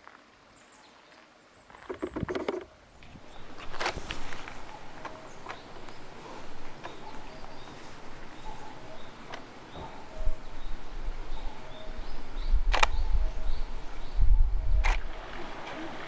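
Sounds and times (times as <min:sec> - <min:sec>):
sharp clicks: 0:01.9 - 0:13.8, 0:14.8 - 0:15.1
low rumble on microphone: 0:03.0 - 0:15.6.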